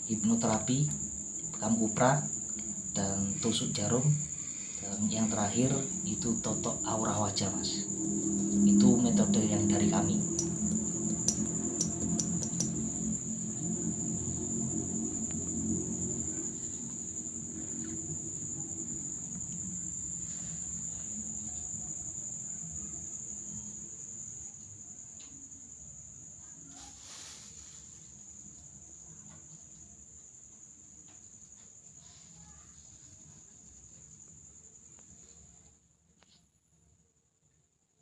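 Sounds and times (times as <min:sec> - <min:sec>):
crickets trilling: 0:00.0 - 0:38.0
low rumble: 0:05.8 - 0:21.4.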